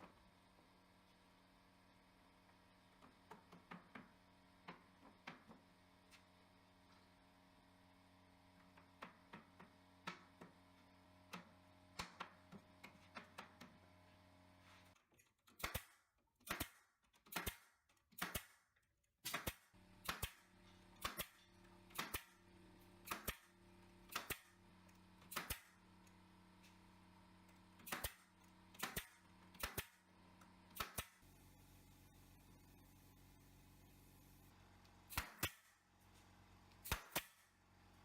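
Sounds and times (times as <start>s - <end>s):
hammering nails into wood: 15.5s - 18.6s, 19.2s - 22.4s, 23.0s - 23.5s, 24.1s - 24.6s, 25.2s - 25.8s, 27.8s - 30.0s, 30.7s - 31.2s, 35.1s - 35.7s, 36.8s - 37.4s.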